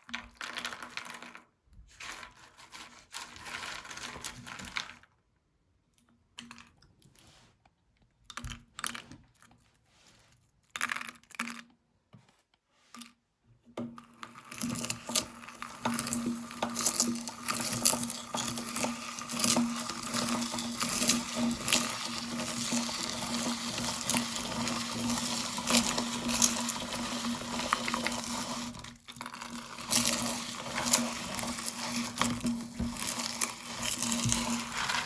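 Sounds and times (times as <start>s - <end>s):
popcorn crackling and crunching: 14.7s - 35.0s.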